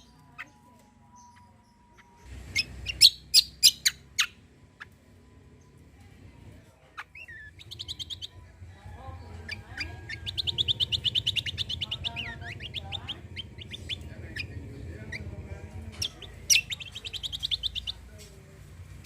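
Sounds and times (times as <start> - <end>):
songbird trilling and whistling: 0.0 - 4.9, 7.0 - 8.4, 9.3 - 15.3, 15.9 - 18.0.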